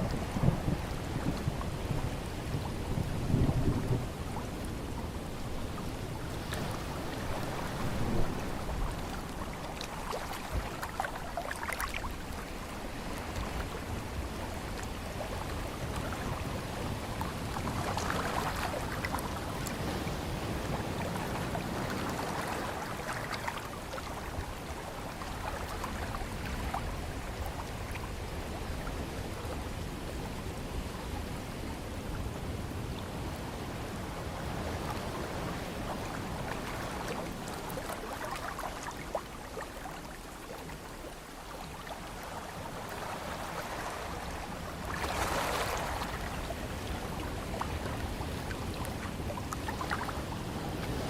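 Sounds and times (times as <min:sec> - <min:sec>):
ocean surf washing: 0:00.0 - 0:51.0
faint splashes: 0:05.8 - 0:14.2.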